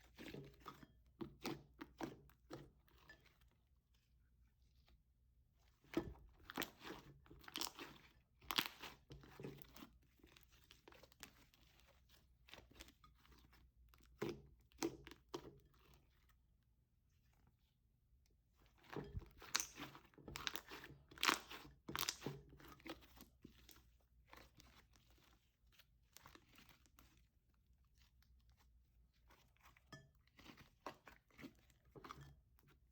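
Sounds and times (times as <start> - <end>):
hands squeezing slime: 6.4 - 16.3, 18.6 - 31.9.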